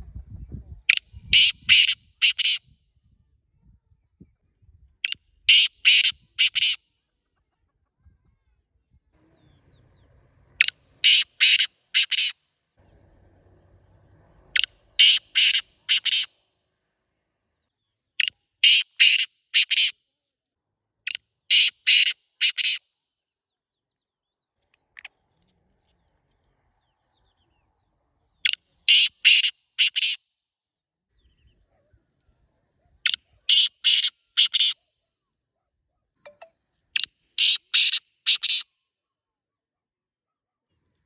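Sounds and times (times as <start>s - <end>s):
high-pitched insect hum: 0.0s - 41.0s
bird harsh grating calls: 1.3s - 2.6s, 5.5s - 6.8s, 11.0s - 12.3s, 14.6s - 16.3s, 18.6s - 19.9s, 21.5s - 22.8s, 28.9s - 30.2s, 33.5s - 34.8s, 37.4s - 38.6s.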